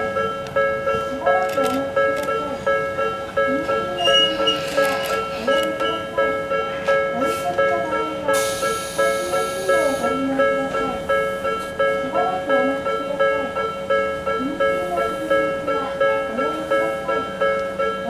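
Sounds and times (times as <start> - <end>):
level-crossing warning bell: 0.0 - 18.0.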